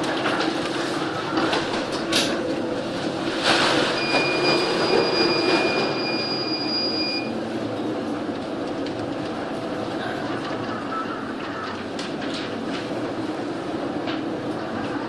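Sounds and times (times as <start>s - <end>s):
train running: 0.0s - 15.0s
high-pitched train squeal: 4.0s - 7.3s.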